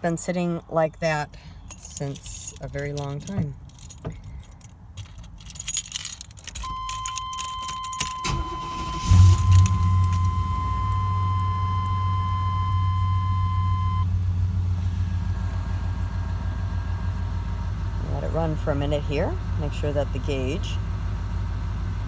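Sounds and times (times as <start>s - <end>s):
car engine idling: 1.0s - 22.0s
car keys jangling: 1.6s - 12.6s
starter cranking: 2.2s - 12.0s
steady warning tone: 6.6s - 14.1s.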